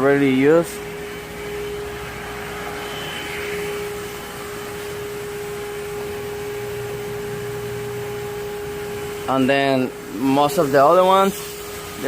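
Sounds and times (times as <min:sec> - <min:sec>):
motor humming with whining tone: 0:00.0 - 0:12.0.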